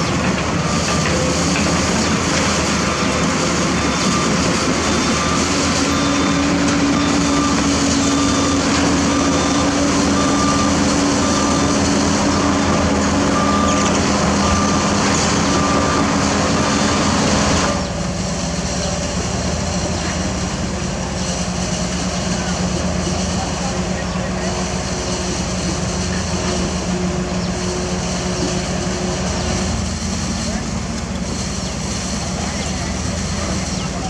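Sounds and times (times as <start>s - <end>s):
reversing alarm beeping: 0.0s - 18.0s
diesel truck engine running: 0.0s - 34.0s.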